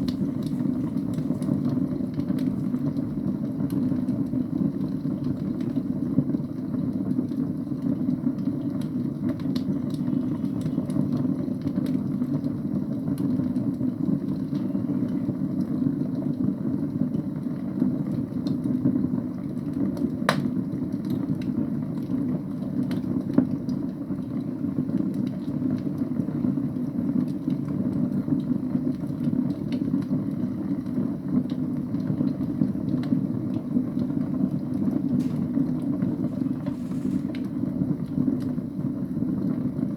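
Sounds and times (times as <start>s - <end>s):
fire crackling: 0.0s - 39.9s
wood fire burning: 0.0s - 39.9s
sharp fire pop: 20.3s - 20.5s.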